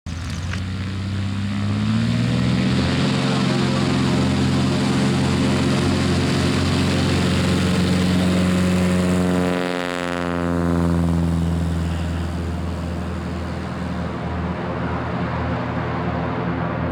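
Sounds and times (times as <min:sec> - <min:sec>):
propeller engine running: 0:00.1 - 0:16.9.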